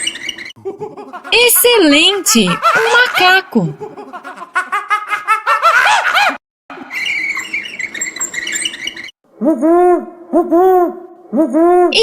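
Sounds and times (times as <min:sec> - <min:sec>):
monkey screeching and chattering: 0:06.9 - 0:09.1.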